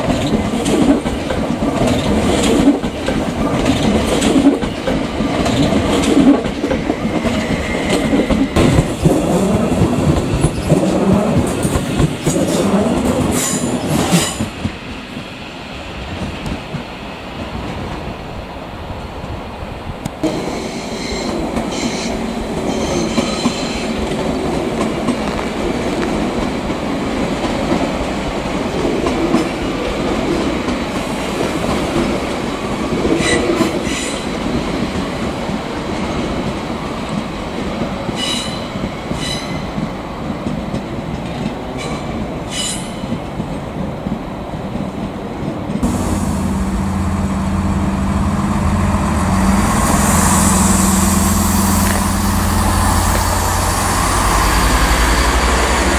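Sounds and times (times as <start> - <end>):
train wheels rumbling on rails: 0.0 - 55.9
low drone: 45.8 - 55.9.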